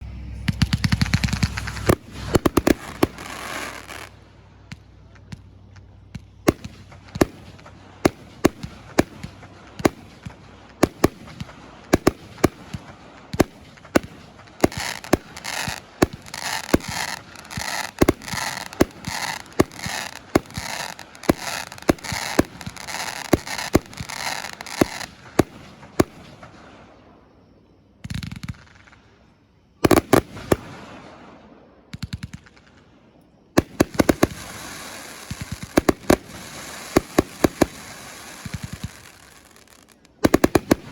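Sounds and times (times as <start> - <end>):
firework crackling: 0.0 - 27.0, 29.8 - 31.2, 33.6 - 40.9
firework bangs: 0.3 - 27.4, 29.8 - 32.7, 33.6 - 40.9.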